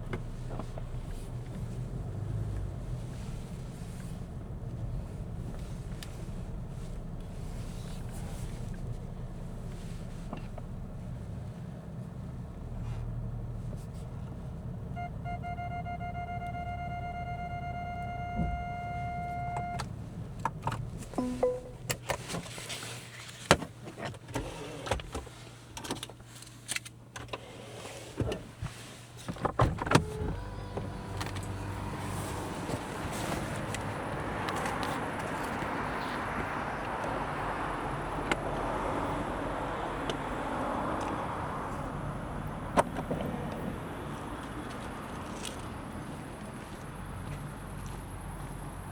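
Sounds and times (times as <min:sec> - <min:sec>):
clicks and knocks of controls: 0:15.0 - 0:22.4
electronic chime tone: 0:21.2 - 0:21.8.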